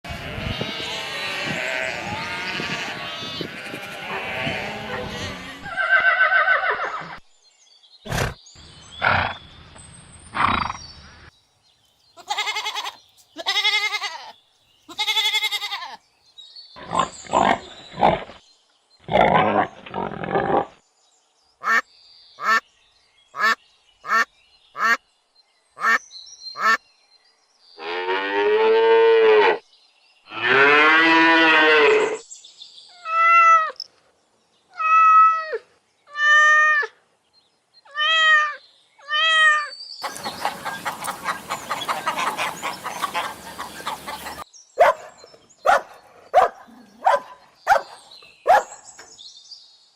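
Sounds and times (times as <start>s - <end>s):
long drawn-out animal calls: 37.9s - 44.4s.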